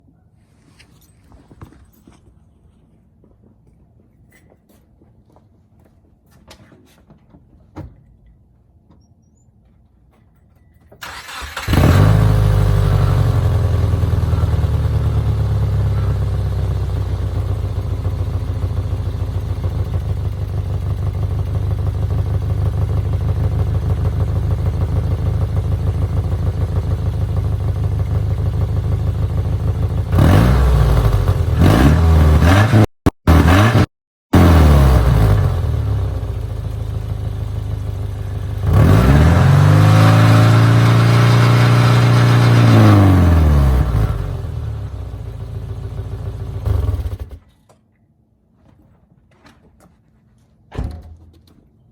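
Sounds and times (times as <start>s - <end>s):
engine revving: 11.0s - 20.2s, 28.6s - 47.4s
car engine starting and idling: 11.0s - 47.4s.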